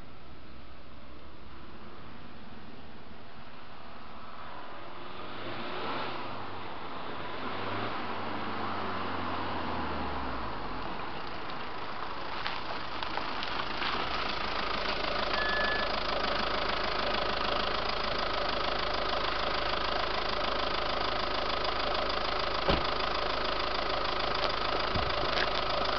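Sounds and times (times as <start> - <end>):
diesel engine idling: 10.3 - 25.9.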